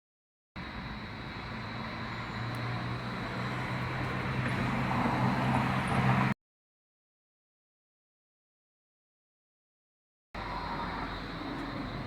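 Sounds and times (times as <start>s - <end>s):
road noise: 0.6s - 6.4s, 10.4s - 12.0s
road vehicle humming: 0.6s - 6.4s, 10.4s - 12.0s.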